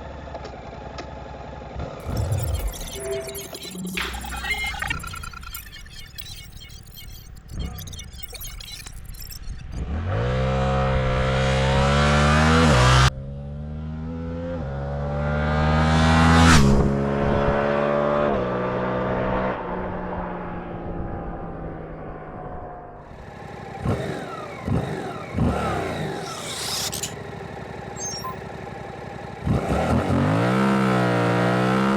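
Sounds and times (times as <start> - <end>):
engine throttle blips: 23.1 - 31.8
motorcycle engine revving: 23.2 - 31.9.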